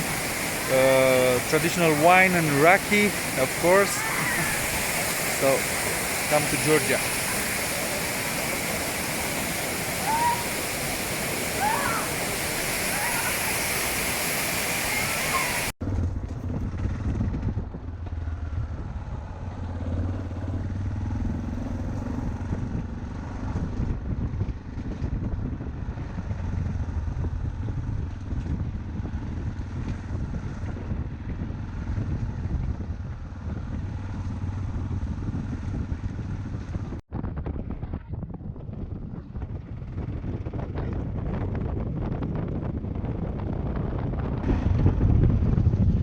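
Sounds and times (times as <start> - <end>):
motorcycle engine running: 15.8 - 42.0.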